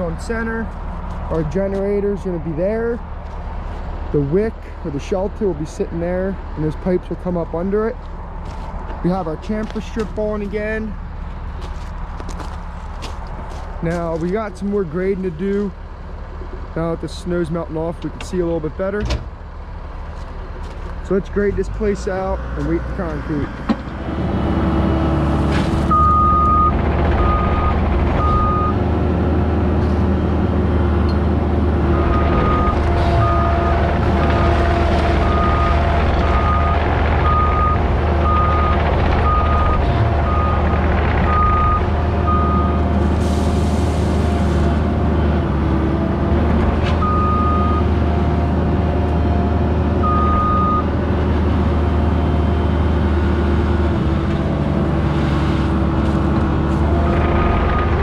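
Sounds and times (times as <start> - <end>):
diesel earthmover engine running: 0.0 - 58.0
backup alarm beeping: 25.9 - 28.8, 31.9 - 33.8, 35.2 - 42.8.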